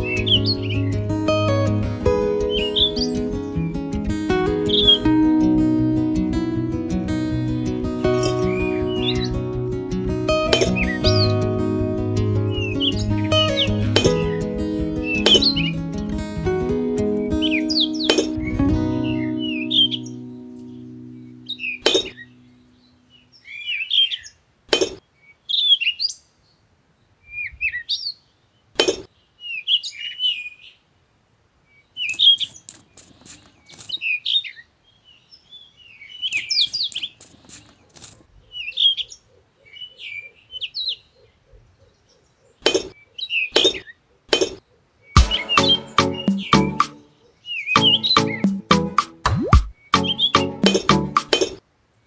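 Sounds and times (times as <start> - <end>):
small birds chirping: 0.0 - 5.2, 7.4 - 30.9, 31.6 - 51.6
sharp clicks: 32.0 - 34.0, 36.3 - 38.2.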